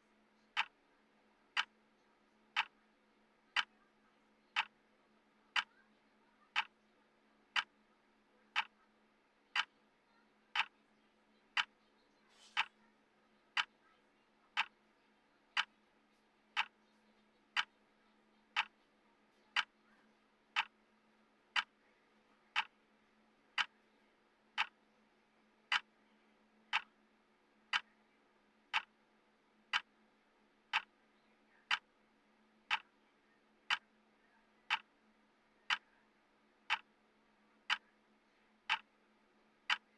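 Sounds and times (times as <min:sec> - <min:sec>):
clock ticking: 0:00.5 - 0:00.8, 0:01.5 - 0:01.8, 0:02.5 - 0:03.8, 0:04.4 - 0:04.8, 0:05.5 - 0:05.8, 0:06.5 - 0:06.8, 0:07.5 - 0:07.8, 0:08.5 - 0:08.8, 0:09.5 - 0:09.7, 0:10.5 - 0:10.8, 0:11.5 - 0:11.8, 0:12.6 - 0:12.8, 0:13.5 - 0:13.8, 0:14.5 - 0:14.8, 0:15.6 - 0:15.8, 0:16.5 - 0:16.8, 0:17.5 - 0:17.8, 0:18.5 - 0:18.8, 0:19.4 - 0:19.8, 0:20.5 - 0:20.9, 0:21.5 - 0:21.8, 0:22.5 - 0:22.8, 0:23.5 - 0:23.8, 0:24.5 - 0:24.8, 0:25.6 - 0:26.0, 0:26.6 - 0:27.0, 0:27.7 - 0:28.0, 0:28.7 - 0:29.0, 0:29.7 - 0:30.0, 0:30.7 - 0:31.0, 0:31.6 - 0:31.9, 0:32.6 - 0:33.0, 0:33.6 - 0:34.0, 0:34.6 - 0:35.0, 0:35.6 - 0:35.9, 0:36.6 - 0:37.0, 0:37.6 - 0:38.0, 0:38.6 - 0:39.9.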